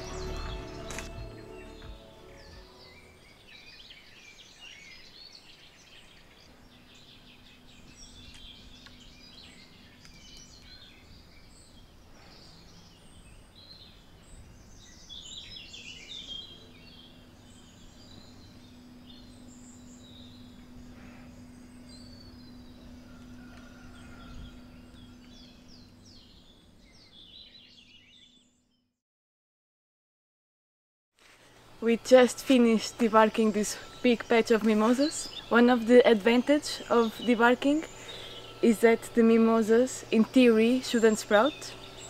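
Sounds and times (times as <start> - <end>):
music: 0.0 - 3.3
birds chirping and singing: 0.0 - 28.8, 31.8 - 42.0
faint low hum: 6.2 - 27.4, 31.3 - 42.0.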